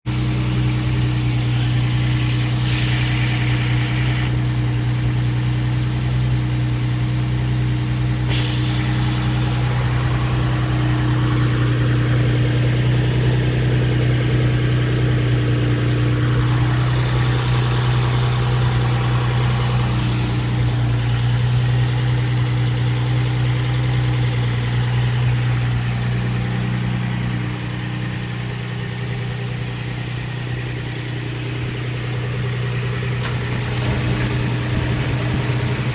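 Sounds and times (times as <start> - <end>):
low mechanical machine hum: 0.9 - 5.4.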